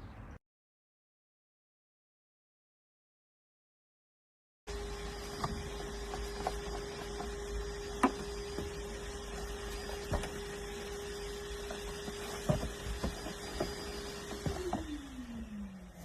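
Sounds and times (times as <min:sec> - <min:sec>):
steady machine hum: 0:04.7 - 0:16.0.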